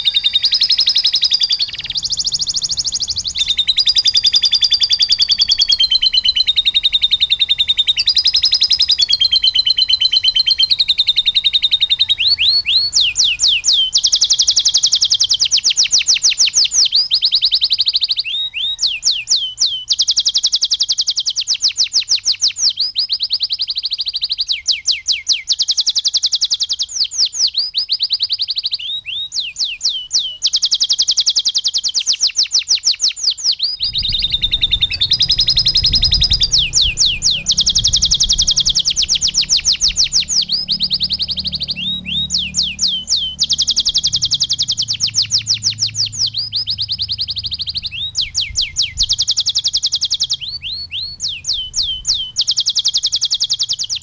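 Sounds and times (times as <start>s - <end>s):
canary singing trills: 0.0s - 54.0s
low rumble: 33.8s - 49.2s.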